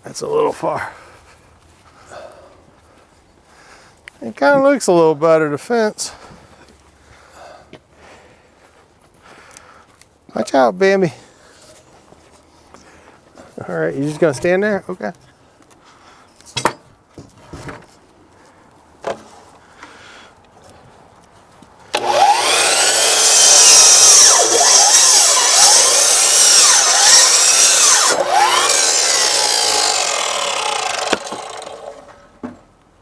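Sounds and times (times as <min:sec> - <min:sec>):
power saw cutting wood: 0:22.0 - 0:32.3.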